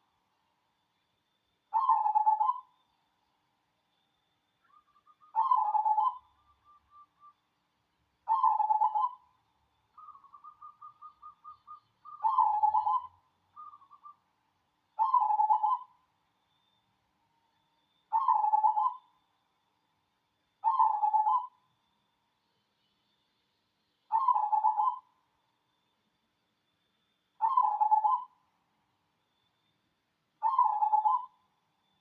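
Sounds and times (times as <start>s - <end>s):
dove cooing: 1.8s - 2.7s, 5.3s - 6.3s, 8.3s - 9.2s, 10.0s - 14.2s, 15.0s - 15.9s, 18.1s - 19.0s, 20.6s - 21.6s, 24.1s - 25.1s, 27.4s - 28.3s, 30.4s - 31.4s.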